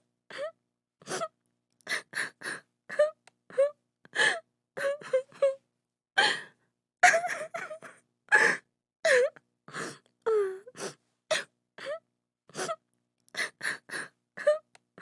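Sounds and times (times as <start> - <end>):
woman sobbing: 2.9 - 5.6, 7.0 - 9.4.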